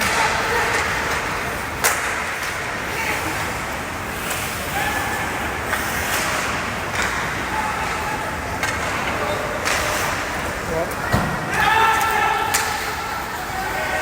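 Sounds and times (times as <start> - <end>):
knocks of sticks or puck: 0.0 - 2.8, 8.6 - 10.3
faint distant shouts: 9.2 - 14.0.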